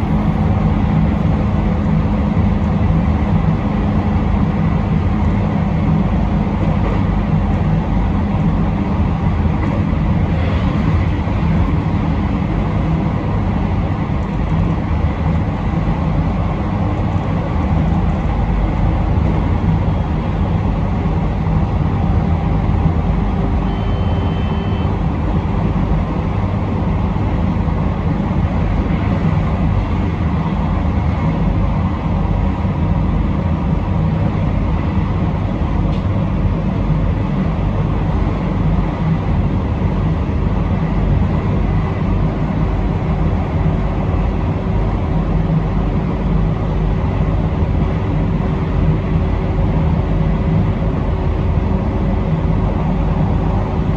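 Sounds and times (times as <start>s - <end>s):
train running gear rumble: 0.0s - 53.9s
brief high tone: 23.6s - 25.0s.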